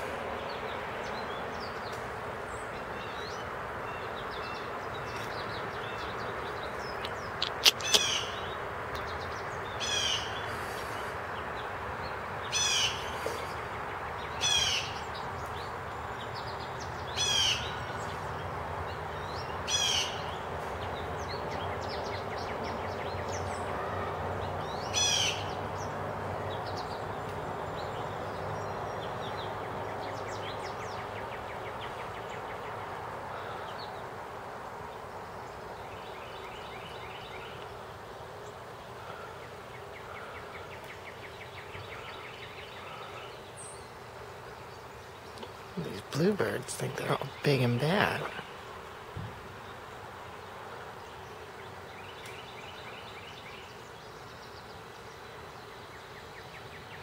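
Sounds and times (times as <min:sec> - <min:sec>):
background noise: 0:00.0 - 0:57.0
bird harsh descending calls: 0:07.2 - 0:08.6.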